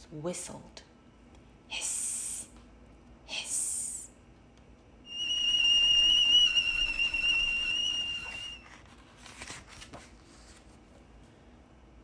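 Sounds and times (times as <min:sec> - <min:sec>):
tea kettle whistling: 0:05.1 - 0:08.8.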